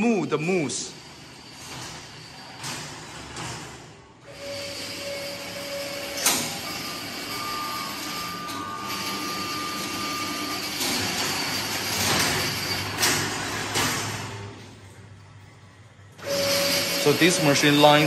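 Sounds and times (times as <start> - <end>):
machinery noise with whining: 0.0 - 18.0.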